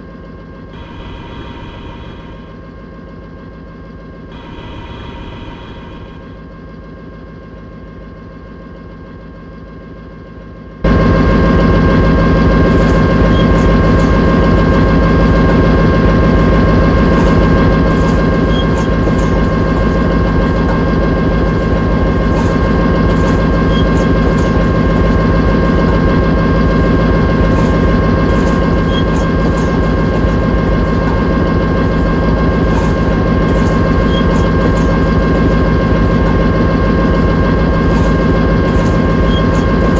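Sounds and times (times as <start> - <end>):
locomotive engine rumbling: 10.9 - 39.9.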